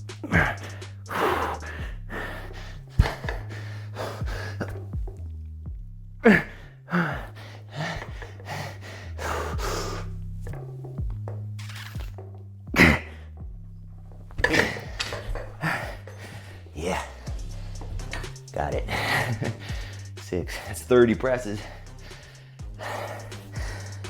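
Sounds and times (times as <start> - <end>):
man breathing hard: 0.0 - 5.2, 6.2 - 10.6, 14.4 - 24.0
background music with bass line: 0.0 - 24.0.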